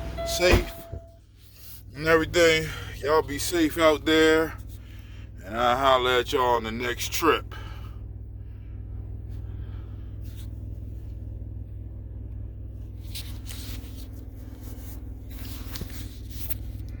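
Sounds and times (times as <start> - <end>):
diesel truck engine idling: 0.0 - 17.0
rustling handling noises: 12.7 - 17.0.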